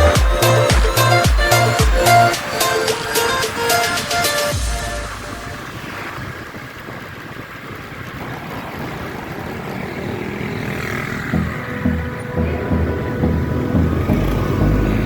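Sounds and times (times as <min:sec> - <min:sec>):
music beat with low thumps: 0:00.0 - 0:06.3, 0:11.4 - 0:15.0
motorcycle riding: 0:00.0 - 0:15.0
wind rushing: 0:00.0 - 0:15.0.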